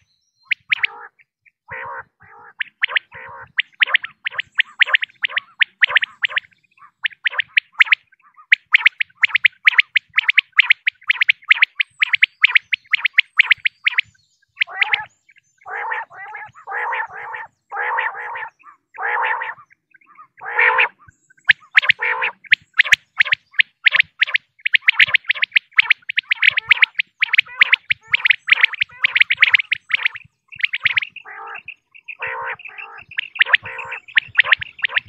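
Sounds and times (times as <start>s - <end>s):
quail high chirps: 0.0s - 35.0s
quail harsh low notes: 14.6s - 35.0s.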